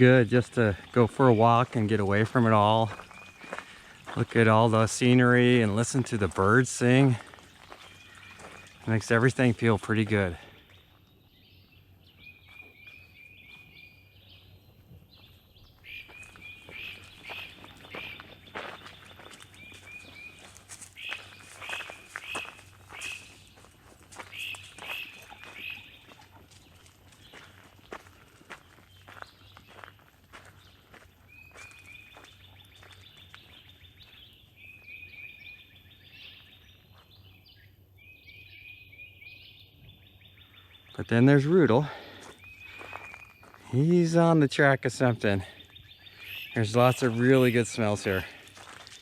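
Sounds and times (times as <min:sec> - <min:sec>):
footsteps crunching on trail: 0:00.0 - 0:37.6, 0:41.6 - 0:44.2, 0:45.4 - 0:49.0
songbirds singing: 0:00.0 - 0:49.0
songbird calling short notes: 0:15.8 - 0:23.6, 0:24.2 - 0:26.3, 0:45.6 - 0:47.8.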